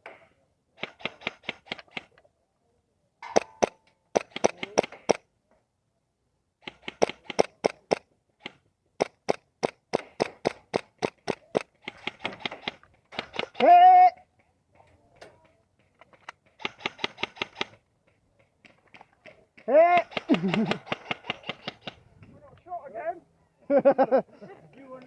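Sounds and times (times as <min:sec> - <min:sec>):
airsoft guns firing: 0:03.2 - 0:05.2, 0:06.6 - 0:08.0, 0:09.0 - 0:13.7, 0:16.6 - 0:17.8, 0:20.0 - 0:22.0.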